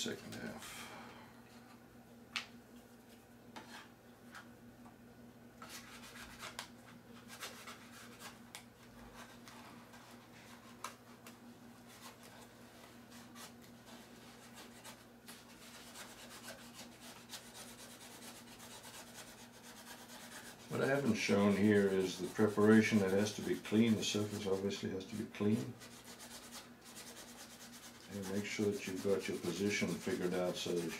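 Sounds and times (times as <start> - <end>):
squeegee scraping: 11.8 - 30.9.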